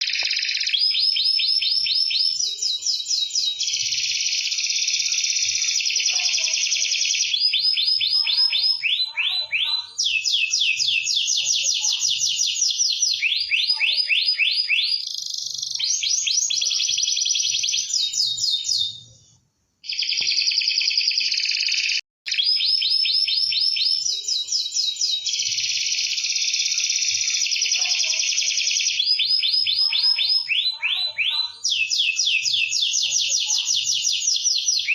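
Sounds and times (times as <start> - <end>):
canary singing trills: 0.0 - 19.2, 19.8 - 34.9.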